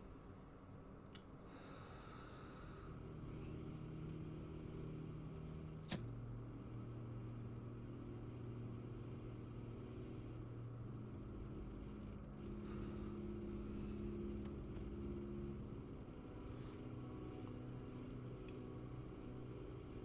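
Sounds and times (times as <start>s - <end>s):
low drone: 0.0s - 20.0s
click: 0.9s - 1.3s.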